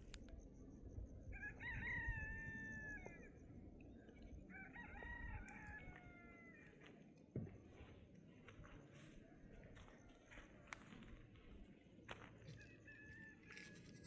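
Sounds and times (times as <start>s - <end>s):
rooster crowing: 1.3s - 3.4s, 4.5s - 6.8s, 12.6s - 14.0s.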